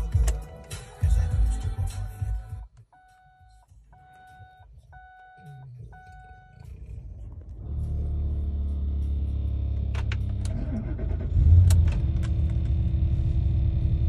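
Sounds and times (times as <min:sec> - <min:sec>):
engine cranking and idling: 0:06.6 - 0:14.0.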